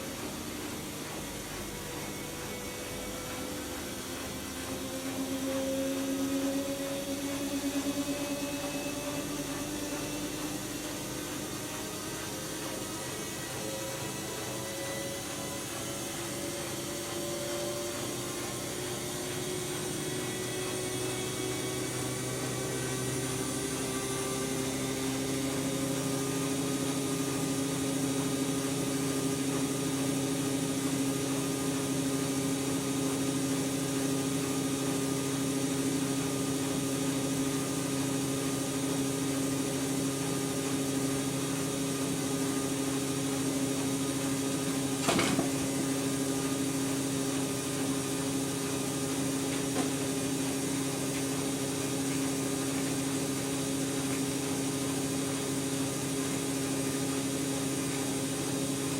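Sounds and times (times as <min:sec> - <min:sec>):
washing machine motor whine: 0:00.0 - 0:58.9.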